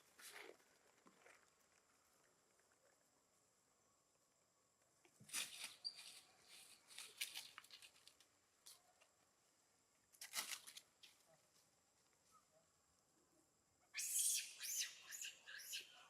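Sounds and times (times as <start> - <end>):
faint rustling and crackling: 0.0 - 3.2, 5.0 - 9.2.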